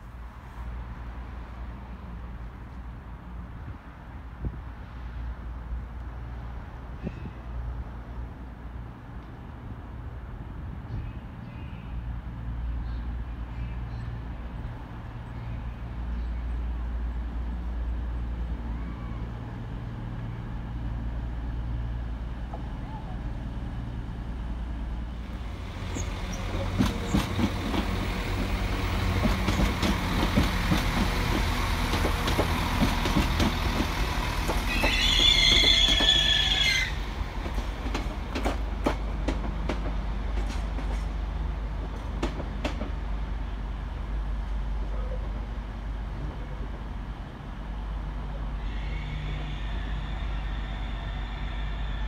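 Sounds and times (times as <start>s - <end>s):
train engine and wheels rumbling: 0.0s - 52.0s
wheels clicking over rail joints: 25.8s - 41.2s
high wheel squeal: 34.6s - 37.1s.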